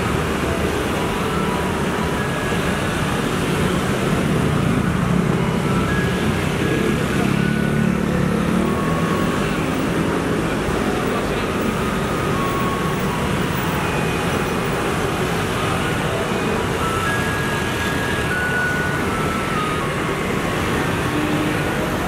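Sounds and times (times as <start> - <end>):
street traffic: 0.0 - 22.0.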